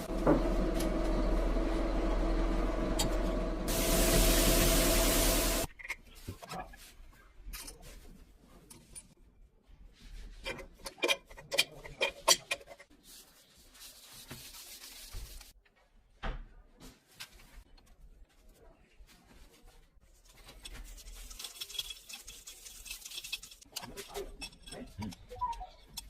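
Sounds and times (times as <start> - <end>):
low hum: 0.0 - 5.7
loud hiss: 3.7 - 5.7.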